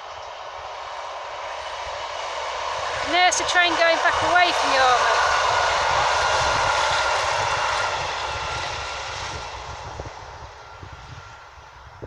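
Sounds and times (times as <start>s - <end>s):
diesel train passing: 0.0s - 12.0s.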